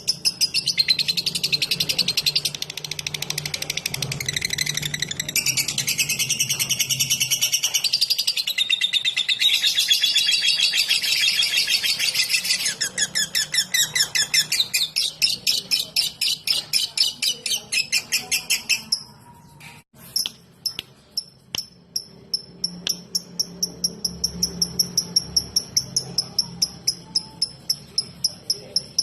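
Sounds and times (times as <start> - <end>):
lovebird ticking call: 20.2 - 29.0.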